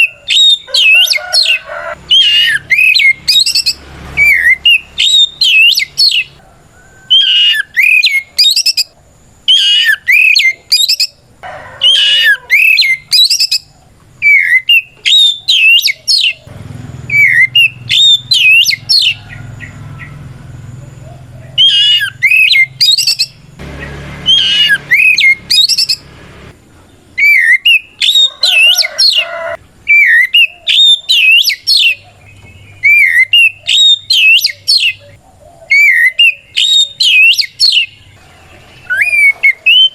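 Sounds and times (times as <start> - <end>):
bird singing whistled phrases: 0.0 - 6.4, 7.1 - 8.9, 9.5 - 11.2, 11.9 - 16.4, 17.1 - 20.1, 21.6 - 23.4, 27.2 - 28.9, 29.9 - 38.0, 38.8 - 39.9.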